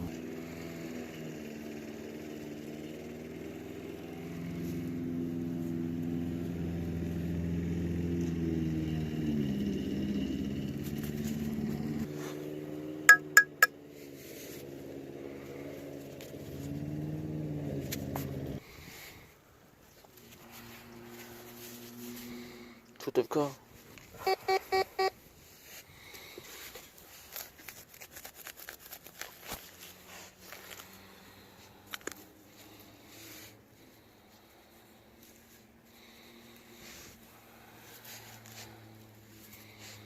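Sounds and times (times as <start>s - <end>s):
engine humming: 0.0s - 12.3s
sharp metallic clinks: 13.1s - 13.7s.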